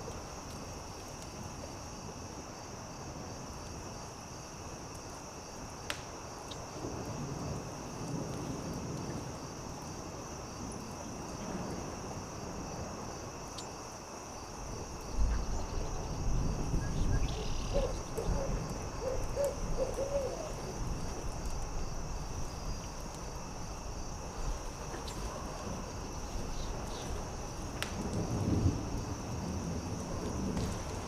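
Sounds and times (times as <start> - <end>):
campfire crackling: 0.0 - 31.0
crickets chirring: 0.0 - 31.0
owl hooting: 17.1 - 20.7.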